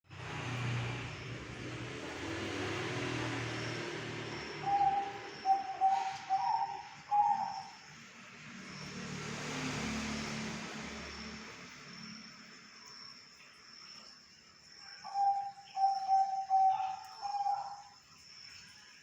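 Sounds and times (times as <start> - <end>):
low traffic rumble: 0.0 - 13.6
bird whistling low notes: 4.6 - 7.7.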